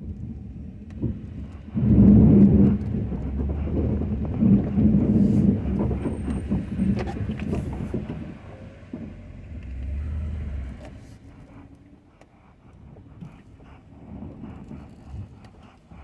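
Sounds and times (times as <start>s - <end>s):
pickup truck engine rumbling: 1.0s - 12.1s.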